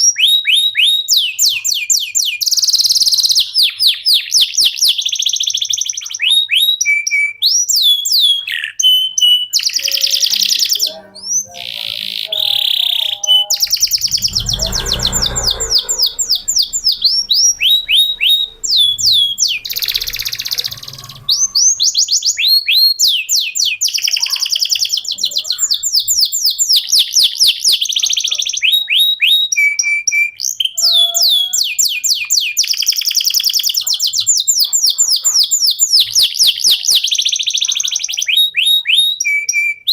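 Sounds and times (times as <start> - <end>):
canary singing trills: 0.0 - 39.9
low rumble: 13.7 - 21.7.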